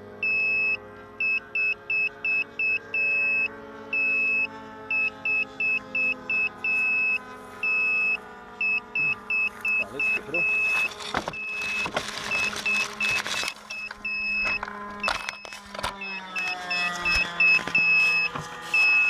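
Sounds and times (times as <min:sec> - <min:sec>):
low multi-tone drone: 0:00.0 - 0:19.0
electronic beeper beeping: 0:00.2 - 0:19.0.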